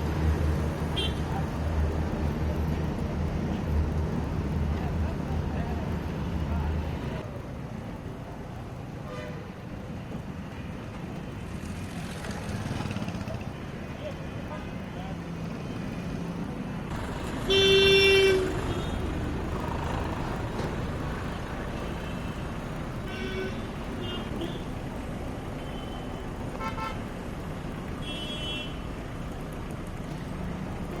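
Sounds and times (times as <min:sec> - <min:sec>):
traffic noise: 0:00.0 - 0:31.0
vehicle horns honking: 0:01.0 - 0:01.3, 0:17.4 - 0:19.1, 0:23.0 - 0:24.7, 0:25.6 - 0:27.0, 0:28.0 - 0:28.9.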